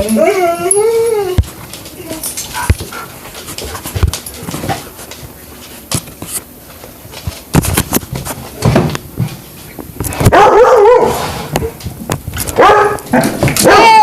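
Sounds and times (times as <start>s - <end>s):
dogs thumping and scuffling: 0.0s - 14.0s
dog bark-whine: 10.3s - 11.3s, 12.6s - 14.0s.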